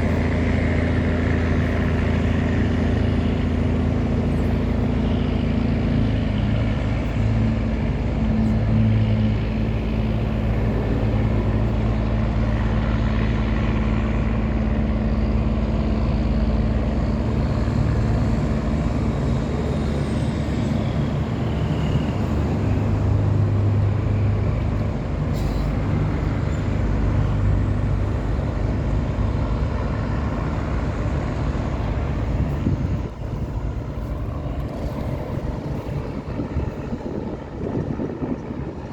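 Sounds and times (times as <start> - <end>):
boat diesel engine running: 0.0 - 38.9.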